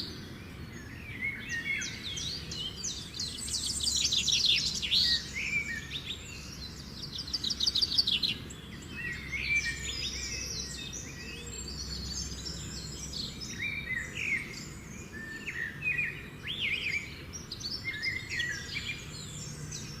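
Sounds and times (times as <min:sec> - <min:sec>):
small birds singing and chirping: 0:00.0 - 0:20.0.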